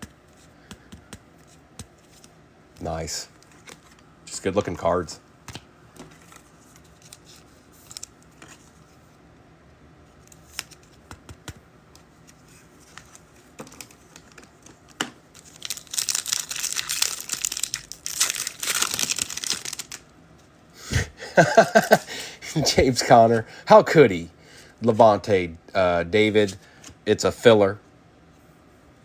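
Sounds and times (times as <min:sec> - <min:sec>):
card pack wrapper crinkling: 0:15.4 - 0:20.1.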